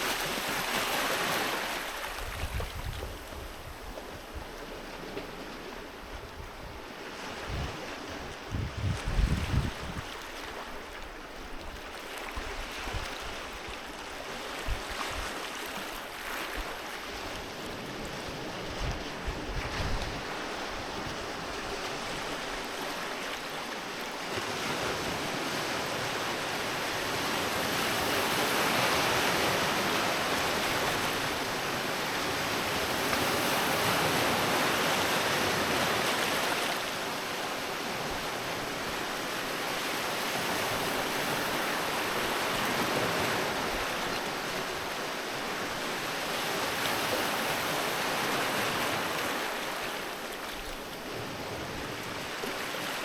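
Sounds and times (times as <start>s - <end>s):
sea waves breaking on beach: 0.0s - 53.0s
wind buffeting microphone: 2.1s - 4.6s, 6.0s - 10.1s, 18.1s - 22.2s.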